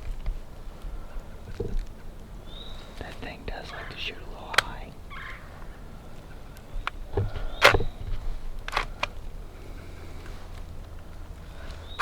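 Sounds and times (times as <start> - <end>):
sharp clicks: 3.8 - 5.0
turkey gobbling: 5.1 - 6.6.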